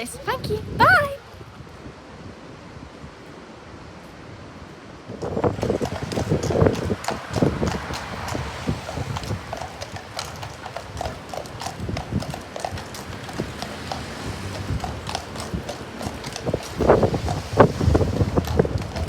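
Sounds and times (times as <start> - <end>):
horse hooves clip-clopping: 4.1 - 19.0.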